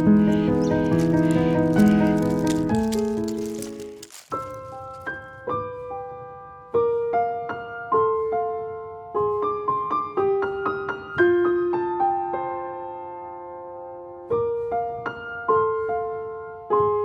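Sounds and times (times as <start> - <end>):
gentle piano melody: 0.0 - 5.4.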